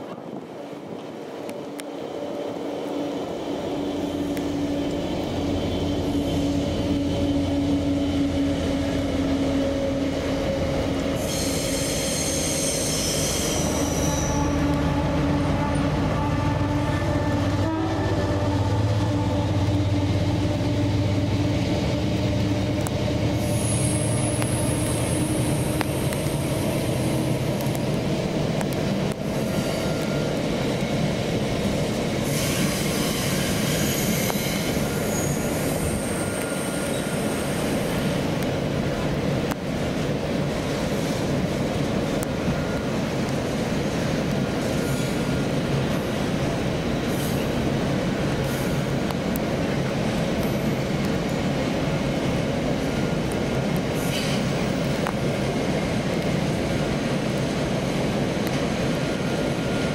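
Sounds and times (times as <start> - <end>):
train running past: 0.0 - 59.9
high-pitched squeals: 5.9 - 20.0, 32.4 - 38.0.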